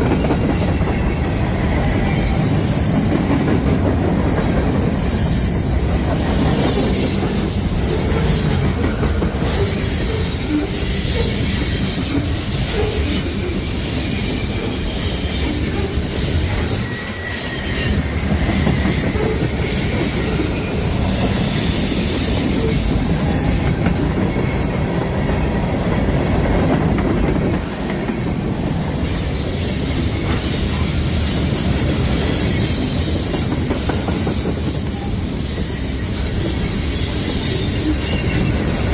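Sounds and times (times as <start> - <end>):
train wheels rumbling on rails: 0.0 - 38.9
high wheel squeals: 0.1 - 26.4, 27.8 - 38.9.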